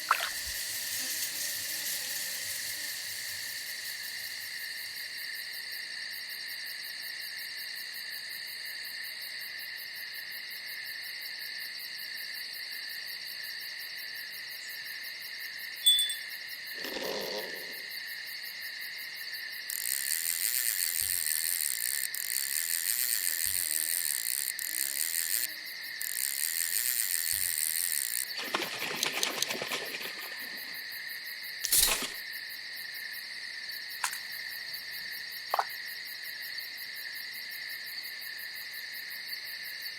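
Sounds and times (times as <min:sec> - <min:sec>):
rustle: 0:00.0 - 0:05.1, 0:31.6 - 0:32.2
high rapid insect buzzing: 0:00.0 - 0:05.8, 0:19.5 - 0:32.3, 0:34.0 - 0:35.8
crickets trilling: 0:00.0 - 0:39.9.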